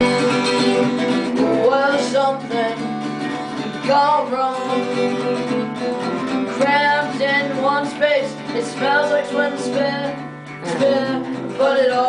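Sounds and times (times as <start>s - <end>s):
man singing: 0.0s - 5.8s, 6.4s - 12.0s
acoustic guitar strumming: 0.0s - 12.0s.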